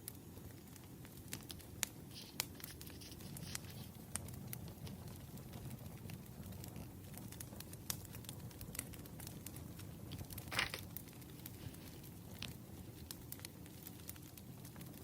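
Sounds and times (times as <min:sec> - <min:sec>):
paper rustling: 0:10.5 - 0:10.8.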